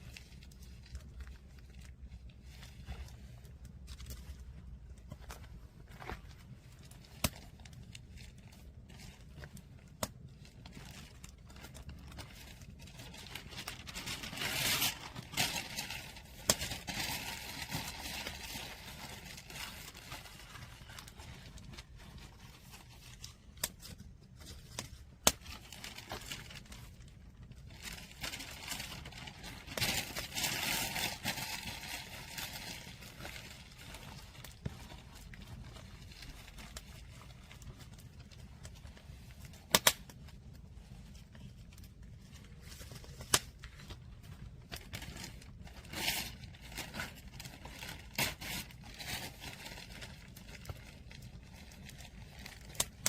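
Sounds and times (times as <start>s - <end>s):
firewood crackling: 39.4s - 44.6s
sharp pops of fire: 39.7s - 40.0s.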